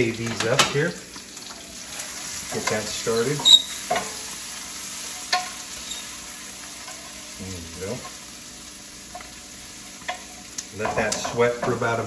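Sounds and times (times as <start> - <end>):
food sizzling in a skillet: 0.0 - 12.0
utensil tapping pan: 2.4 - 4.3, 9.1 - 12.0.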